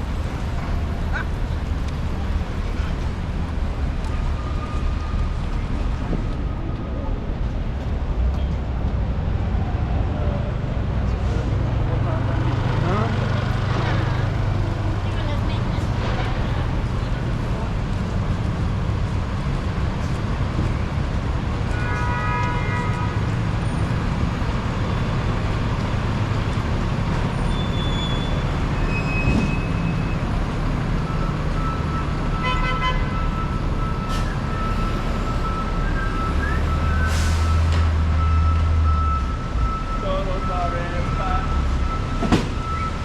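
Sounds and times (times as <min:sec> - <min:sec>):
heavy vehicle engine rumbling: 0:00.0 - 0:43.0
traffic on wet road: 0:00.0 - 0:43.0
car horn honking: 0:21.7 - 0:23.3, 0:32.4 - 0:33.3.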